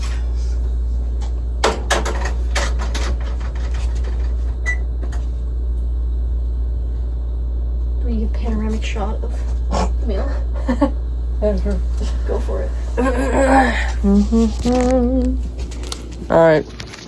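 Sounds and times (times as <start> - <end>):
steady low hum: 0.0 - 17.0
kitchen clicks and knocks: 1.6 - 4.3.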